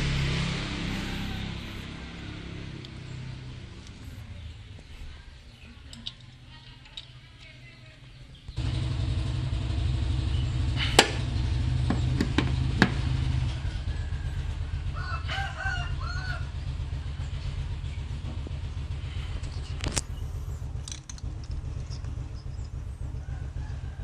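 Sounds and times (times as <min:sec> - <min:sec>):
rooster crowing: 0:00.0 - 0:03.4, 0:13.4 - 0:17.2, 0:23.1 - 0:24.0
car engine starting and idling: 0:00.0 - 0:07.4, 0:08.4 - 0:24.0.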